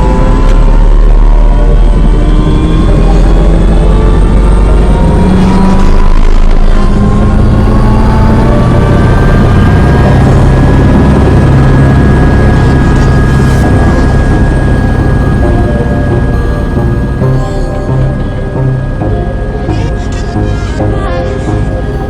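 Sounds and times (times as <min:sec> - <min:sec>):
helicopter turbine engines: 0:00.0 - 0:22.0
turbine whine: 0:00.0 - 0:22.0.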